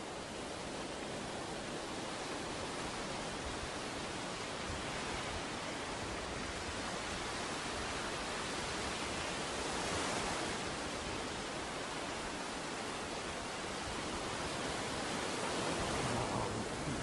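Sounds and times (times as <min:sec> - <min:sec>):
ocean waves breaking on beach: 0:00.0 - 0:17.0.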